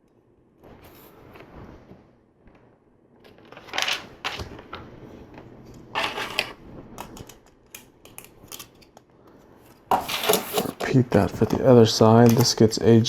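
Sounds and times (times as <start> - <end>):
plastic pieces rustling and scraping: 3.2 - 4.8, 5.7 - 9.0, 9.9 - 11.6.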